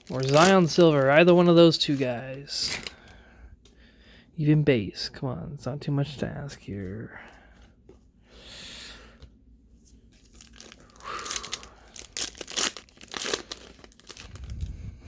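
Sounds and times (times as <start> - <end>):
wrapper crinkling: 0.0 - 3.0, 10.2 - 14.7
wrapper tearing: 0.0 - 3.0, 10.3 - 14.7.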